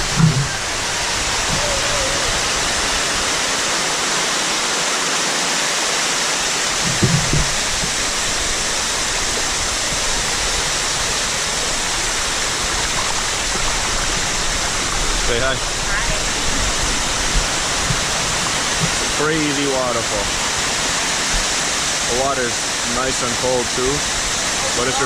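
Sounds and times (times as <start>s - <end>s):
brief low bump: 0.0s - 0.6s, 6.8s - 7.9s
water rushing over rocks: 0.0s - 25.0s.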